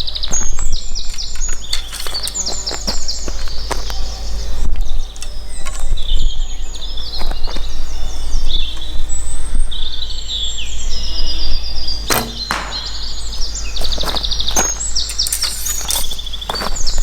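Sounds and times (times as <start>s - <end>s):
songbirds chirping and singing: 0.0s - 17.0s
arrow shot from a bow: 12.1s - 13.2s.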